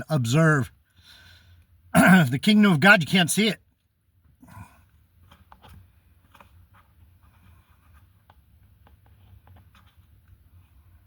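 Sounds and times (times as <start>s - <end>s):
faint clicks and rustles: 3.8s - 11.0s.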